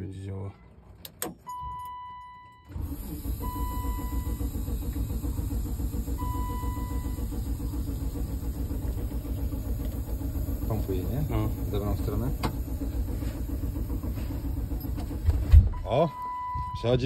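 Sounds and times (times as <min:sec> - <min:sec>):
engine cranking by starter: 0:02.6 - 0:17.0
high beeps: 0:15.8 - 0:16.9.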